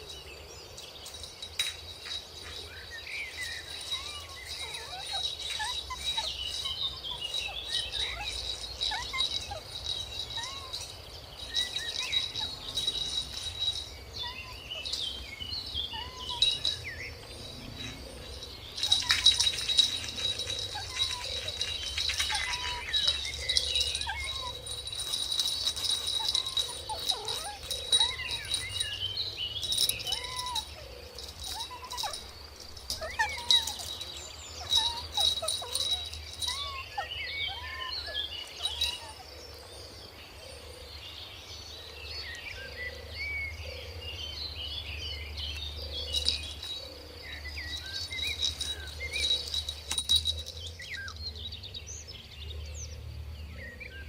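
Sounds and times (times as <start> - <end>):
kittens mewing: 29.6 - 39.3.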